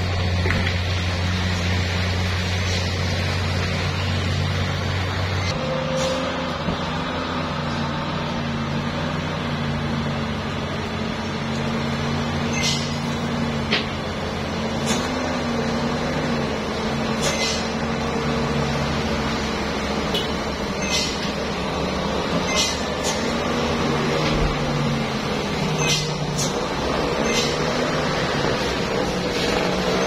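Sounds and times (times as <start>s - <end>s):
truck diesel engine running: 0.0s - 30.0s
air brake hisses: 5.8s - 6.4s, 17.2s - 17.8s.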